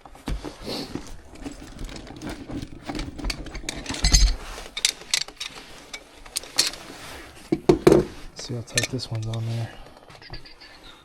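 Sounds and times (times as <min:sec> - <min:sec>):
metal hand tools clinking: 0:01.3 - 0:09.8.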